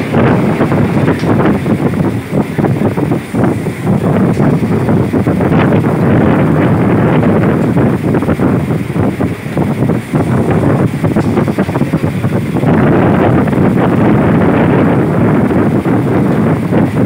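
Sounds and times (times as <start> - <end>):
train running noise on rails: 0.0 - 17.0
wind buffeting microphone: 0.0 - 17.0.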